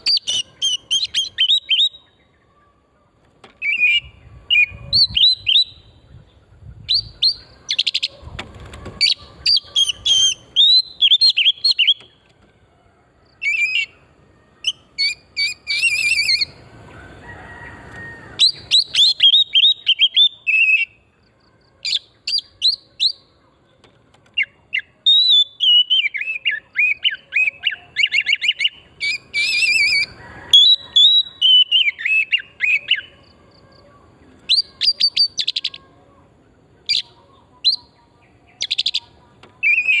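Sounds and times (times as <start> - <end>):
bird singing whistled phrases: 0.0 - 2.3, 3.6 - 6.0, 9.1 - 12.0, 14.6 - 16.6, 18.4 - 21.0, 24.4 - 33.1, 34.4 - 35.8, 36.9 - 38.0, 38.6 - 40.0.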